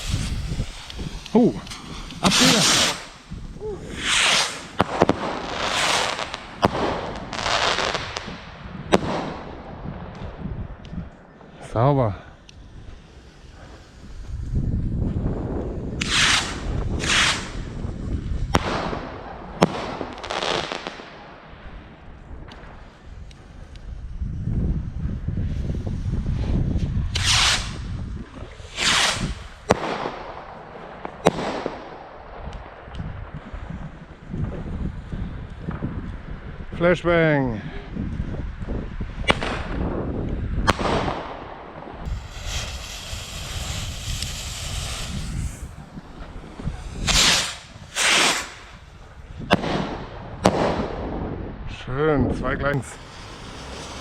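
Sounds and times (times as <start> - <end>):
hissing noise: 0.0 - 6.6, 11.8 - 15.1, 42.0 - 49.3, 52.7 - 54.0
fireworks bangs: 0.0 - 23.6, 25.1 - 36.6, 38.5 - 51.4, 52.7 - 54.0
fireworks whooshing: 0.0 - 36.8, 38.0 - 51.4, 52.6 - 54.0.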